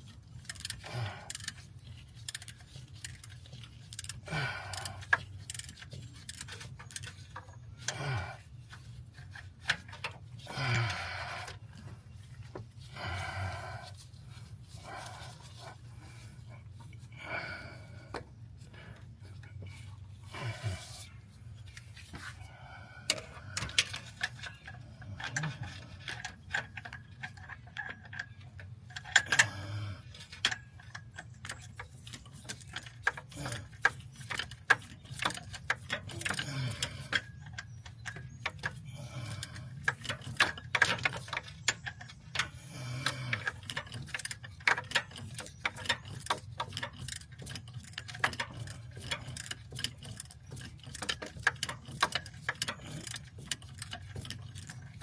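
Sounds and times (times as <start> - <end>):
hand ratchet clicking: 0.4 - 7.9, 30.4 - 55.0.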